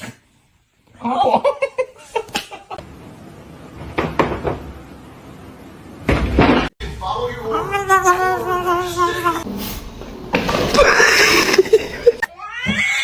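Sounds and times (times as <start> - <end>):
person laughing: 10.8 - 12.3.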